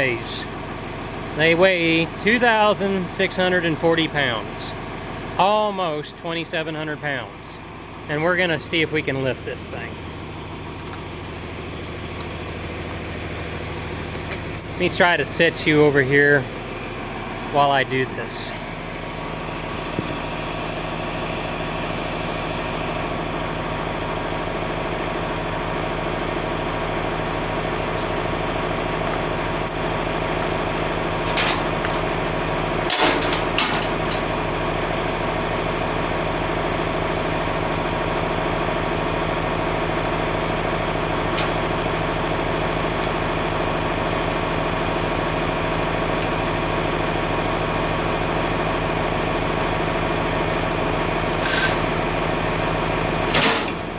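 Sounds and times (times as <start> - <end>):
engine running steadily: 0.0 - 53.9
sharp clanks: 31.2 - 32.2, 32.8 - 34.4, 41.3 - 41.8, 51.4 - 52.0, 53.0 - 53.9.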